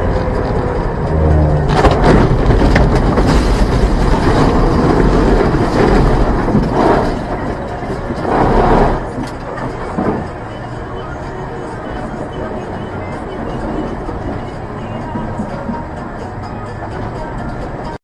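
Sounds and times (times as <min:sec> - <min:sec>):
loud vehicle noise: 0:00.0 - 0:18.0.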